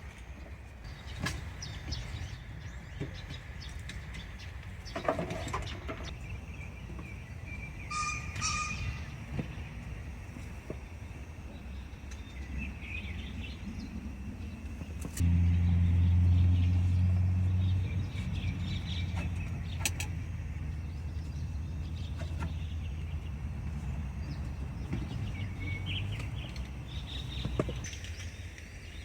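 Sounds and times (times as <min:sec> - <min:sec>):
birds chirping and singing: 0:00.4 - 0:29.0
steady low rumble: 0:06.1 - 0:29.0.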